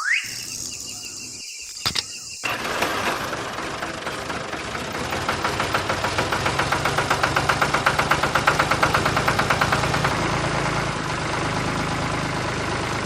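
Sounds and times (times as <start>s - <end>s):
small motor ticking: 2.4s - 10.1s
low motor hum: 2.5s - 13.0s.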